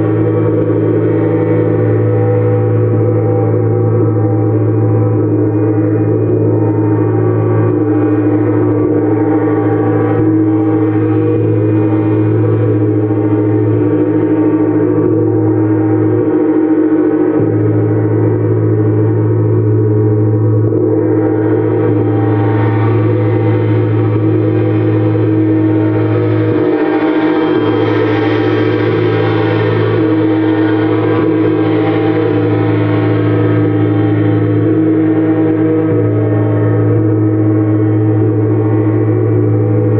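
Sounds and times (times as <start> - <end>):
gong sustained tones: 0.0 - 39.9
strong low hum: 0.0 - 39.9.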